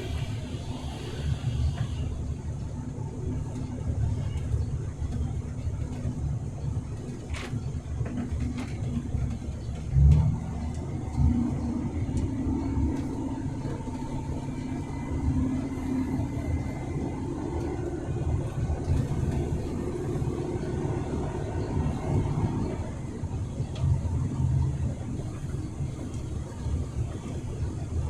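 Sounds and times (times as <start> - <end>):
road rumble: 0.0 - 28.0
truck engine running: 0.0 - 28.0.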